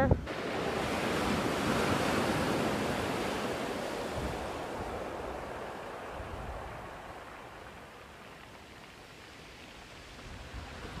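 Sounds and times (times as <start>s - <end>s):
storm surf rushing: 0.2s - 8.4s.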